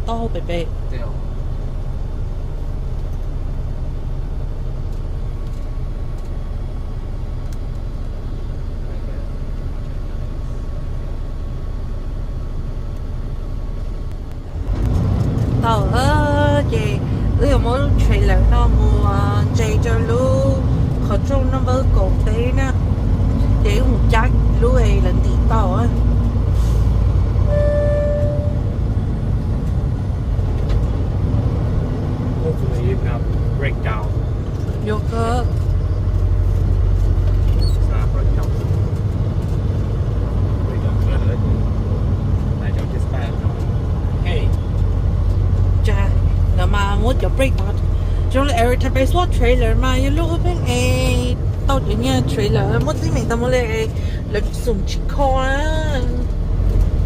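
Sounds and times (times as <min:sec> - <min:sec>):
road noise: 0:00.0 - 0:57.0
truck engine rumble: 0:00.0 - 0:57.0
steady beep: 0:27.5 - 0:28.7.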